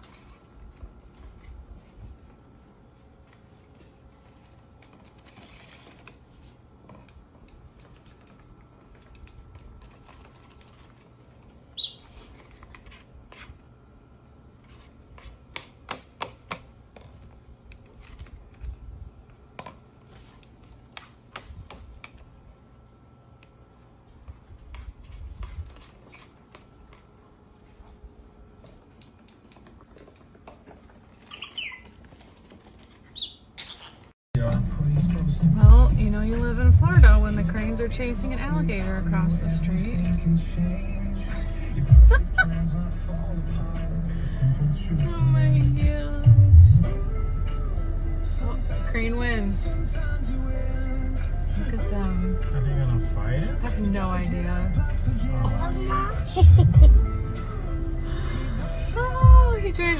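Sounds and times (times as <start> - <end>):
high falling bird chirp: 11.8 - 12.3, 31.3 - 32.0, 33.1 - 34.1.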